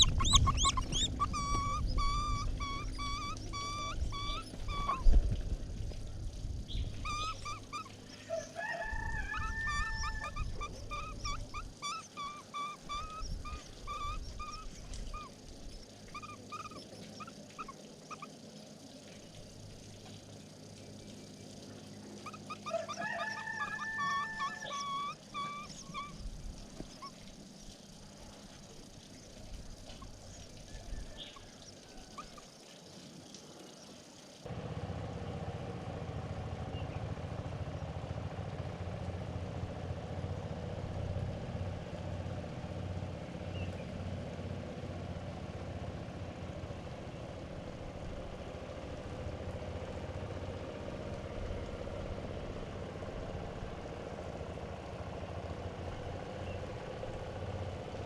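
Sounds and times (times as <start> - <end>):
faint bird chirps: 0.0 - 5.2, 6.7 - 8.6, 9.2 - 18.7, 21.0 - 27.8, 29.0 - 34.0
whistled bird calls: 0.0 - 5.2, 6.7 - 18.3, 21.9 - 27.2, 29.2 - 32.5
steady low engine hum: 0.0 - 32.6, 34.4 - 58.0.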